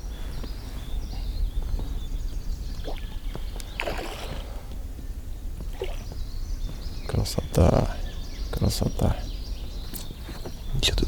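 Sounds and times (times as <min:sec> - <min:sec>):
water splashing against boat: 0:02.8 - 0:04.8.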